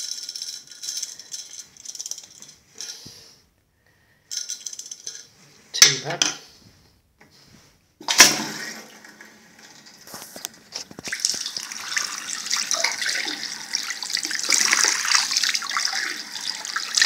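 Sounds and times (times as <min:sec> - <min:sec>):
water running and splashing: 0:08.1 - 0:17.0.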